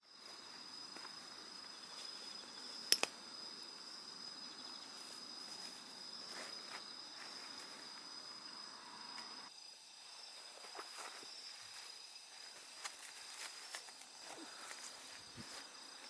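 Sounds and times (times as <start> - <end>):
crickets trilling: 0.0 - 16.0
sharp clicks: 2.8 - 3.2.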